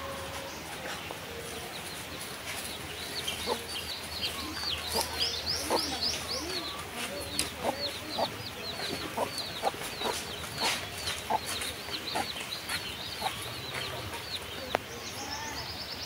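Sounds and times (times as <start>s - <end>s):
birds chirping: 0.0s - 16.0s
bird clucking calls: 2.6s - 14.8s.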